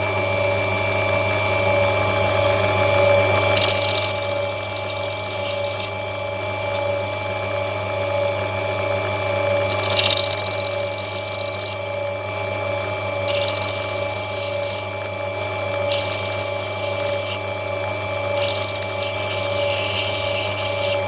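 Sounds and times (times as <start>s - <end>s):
grinder motor humming: 2.5s - 7.0s, 9.4s - 11.9s, 13.3s - 17.5s, 18.3s - 21.0s
stone hissing on grinding wheel: 3.6s - 6.0s, 9.7s - 11.8s, 13.3s - 14.9s, 15.8s - 17.4s, 18.4s - 21.0s.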